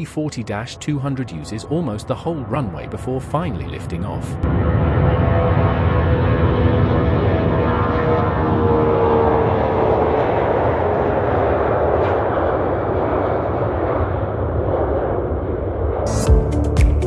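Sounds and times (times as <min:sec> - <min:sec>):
steady whine: 0:00.0 - 0:06.9
jet engines at takeoff: 0:00.0 - 0:16.1.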